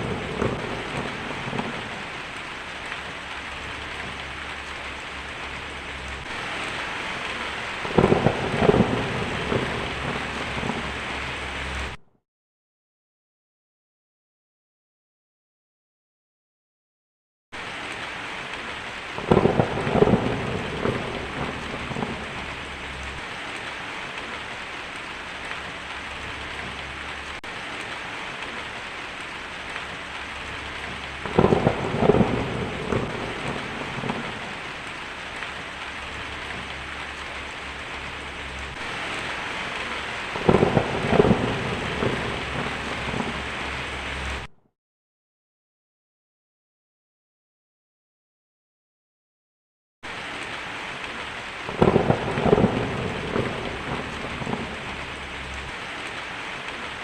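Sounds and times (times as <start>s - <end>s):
heavy rain falling: 0.0s - 12.0s, 17.6s - 44.5s, 50.0s - 57.0s
thunder claps: 0.0s - 12.0s, 18.6s - 44.5s, 51.7s - 56.9s.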